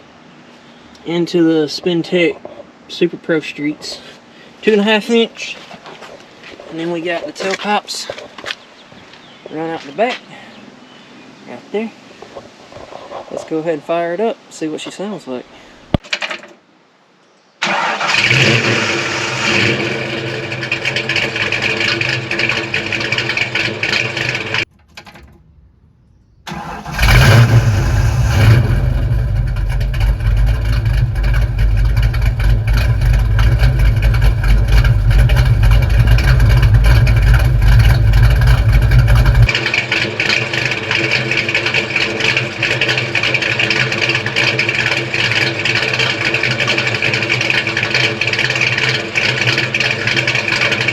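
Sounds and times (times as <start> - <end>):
car engine running loud: 18.1 - 25.4, 26.5 - 50.9.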